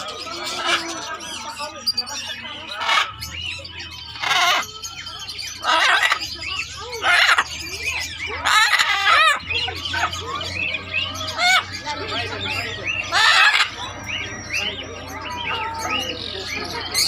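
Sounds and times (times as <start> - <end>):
parrots chirping and chattering: 0.0 - 17.0
harsh parrot squawks: 4.1 - 4.8, 5.5 - 7.6, 8.3 - 10.2, 12.9 - 13.9.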